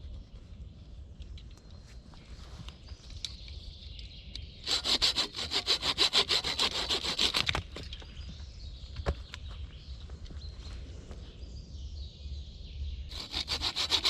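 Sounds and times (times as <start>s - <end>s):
hand saw cutting wood: 4.6s - 7.7s, 13.1s - 14.0s.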